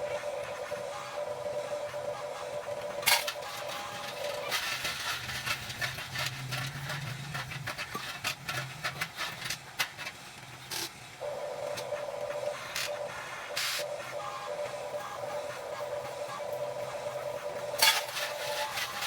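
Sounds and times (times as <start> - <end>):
small electric motor hum: 11.2 - 19.0.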